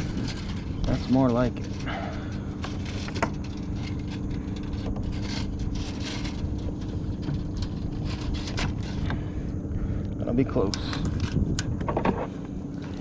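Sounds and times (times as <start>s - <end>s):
scraping sounds: 0.0s - 9.4s
boat motor humming: 0.0s - 10.2s.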